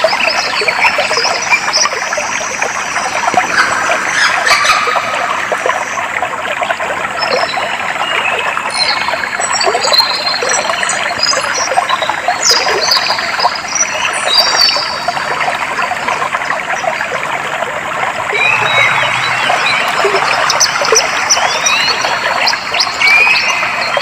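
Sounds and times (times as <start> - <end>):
water flowing and trickling: 0.0 - 24.0
birds chirping: 18.2 - 24.0.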